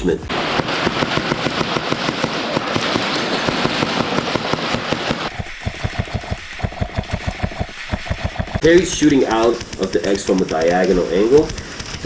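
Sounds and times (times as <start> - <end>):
gun rattling full-auto: 0.3 - 5.4, 8.5 - 12.0
airsoft guns firing: 0.3 - 12.0.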